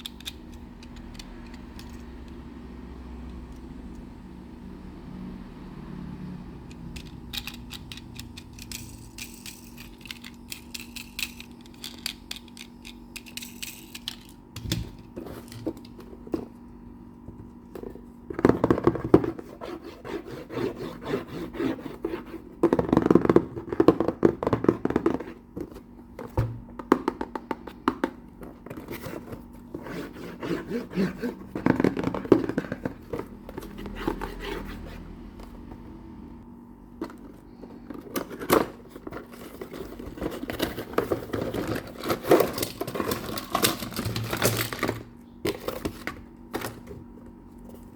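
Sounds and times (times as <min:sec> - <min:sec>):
toy trucks clicking and tapping: 0:06.7 - 0:14.7
toy trucks scraping and rattling: 0:07.0 - 0:14.4.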